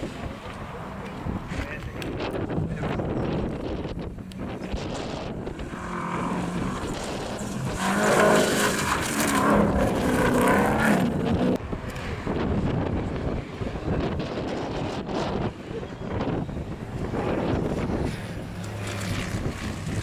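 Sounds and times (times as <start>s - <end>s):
rally car engine revving: 0.0s - 13.3s
wind buffeting microphone: 0.0s - 20.0s.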